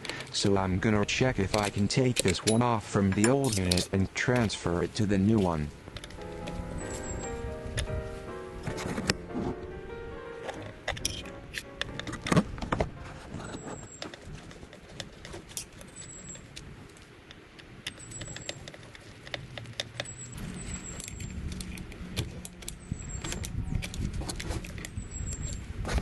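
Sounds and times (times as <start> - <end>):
metallic clinks of hand tools: 1.5 - 4.6.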